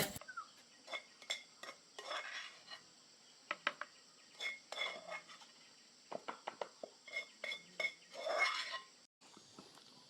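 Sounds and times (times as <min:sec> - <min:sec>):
utensils clinking on cookware: 0:00.9 - 0:02.7, 0:04.4 - 0:05.5, 0:07.0 - 0:09.0.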